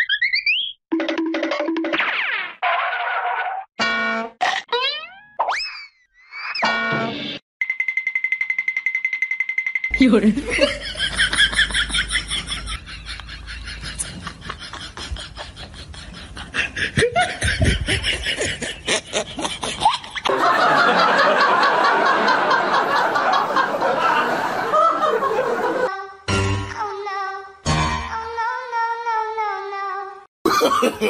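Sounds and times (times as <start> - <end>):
snickering laughter: 10.5 - 25.9, 30.5 - 31.0.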